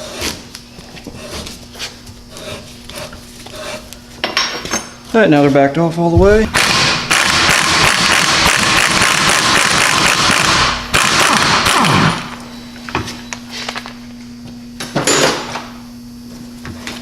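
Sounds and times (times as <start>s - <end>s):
steady low hum: 0.0s - 17.0s
impact wrench hammering: 6.2s - 12.3s.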